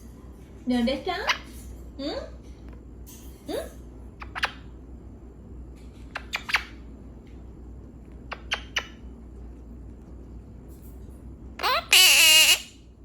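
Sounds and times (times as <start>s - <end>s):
parrot squawking: 4.2s - 4.7s, 6.2s - 6.8s, 8.3s - 9.0s, 11.6s - 12.8s.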